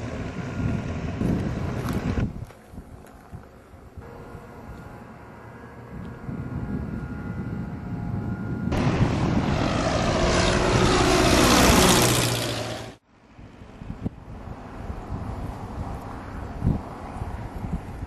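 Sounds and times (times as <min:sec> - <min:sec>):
propeller airplane passing: 0:00.0 - 0:02.2, 0:03.0 - 0:13.0.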